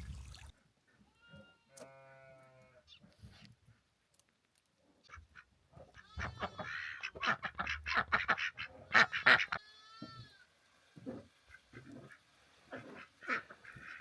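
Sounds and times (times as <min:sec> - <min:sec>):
ducks quacking: 0:05.1 - 0:09.6, 0:11.0 - 0:14.0
long drawn-out duck call: 0:06.2 - 0:09.7.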